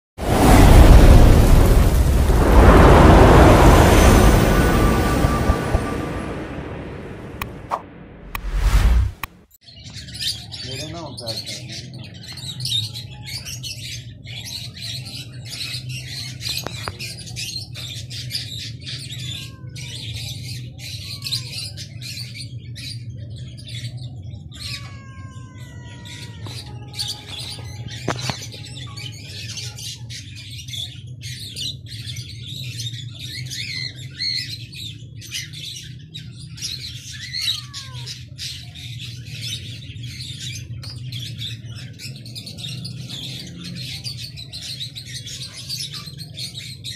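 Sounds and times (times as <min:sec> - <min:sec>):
small birds chirping: 0:09.6 - 0:46.9
cat meowing: 0:19.2 - 0:20.0, 0:24.5 - 0:28.7, 0:37.2 - 0:38.3.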